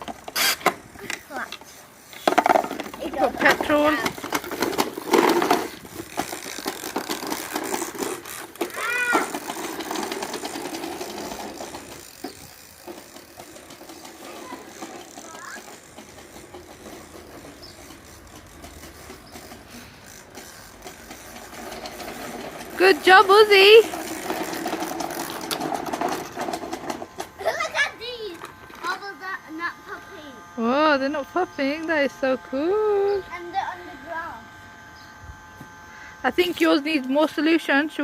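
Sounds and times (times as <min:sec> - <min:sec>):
toy lawn mowers rattling: 0:00.0 - 0:38.0
child calling: 0:08.6 - 0:09.4, 0:14.2 - 0:15.8, 0:27.4 - 0:30.4, 0:33.0 - 0:34.4.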